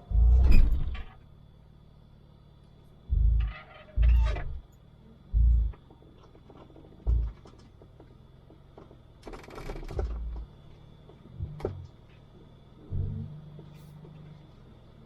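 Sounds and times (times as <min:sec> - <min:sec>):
low engine hum: 0:00.0 - 0:15.0
heavy thuds and clicking knocks: 0:05.3 - 0:10.5.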